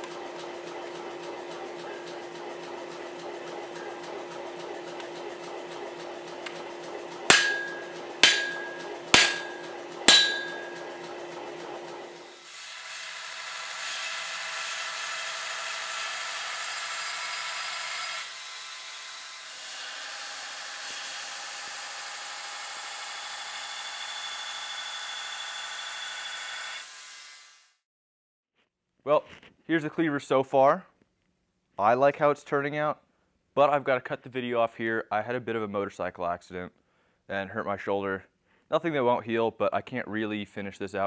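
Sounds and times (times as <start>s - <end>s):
hammer blows on steel: 7.3s - 11.1s.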